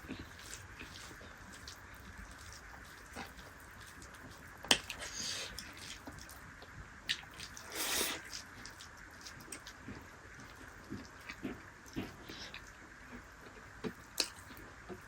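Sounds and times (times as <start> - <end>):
mouth clicks and chewing: 0.0 - 15.0
hissing slurp: 7.4 - 8.4.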